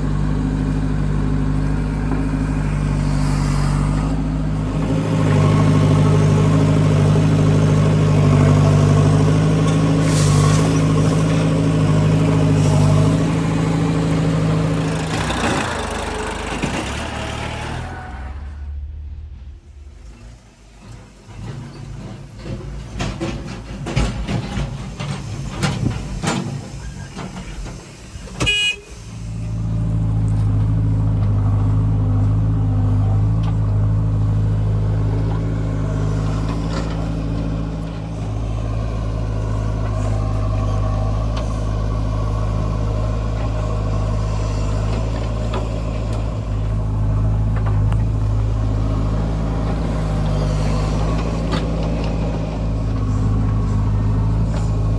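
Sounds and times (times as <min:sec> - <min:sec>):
diesel engine running: 0:00.0 - 0:54.9
knocks and clatter: 0:19.4 - 0:28.5
short horn toot: 0:28.4 - 0:29.2.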